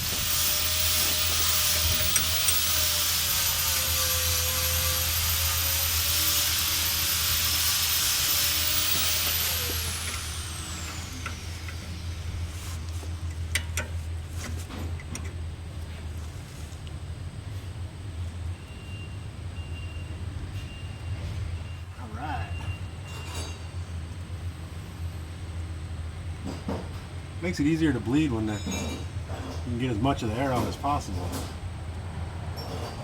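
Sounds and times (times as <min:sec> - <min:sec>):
pressurised air hissing with whistle: 0:00.0 - 0:13.0.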